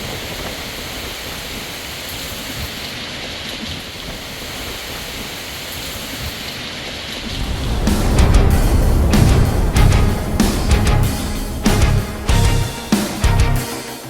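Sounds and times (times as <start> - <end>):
rain: 0.0 - 13.6
hurricane wind: 0.0 - 13.7
wind gusts rumbling on microphone: 6.8 - 13.6.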